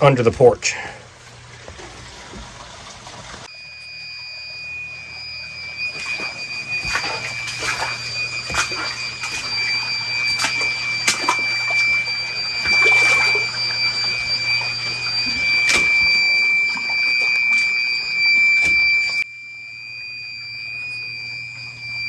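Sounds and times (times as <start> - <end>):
low electrical hum: 0.0 - 22.0
floodwater splashing and gushing: 0.9 - 3.5, 5.8 - 19.2
high-pitched electronic tone: 3.5 - 22.0.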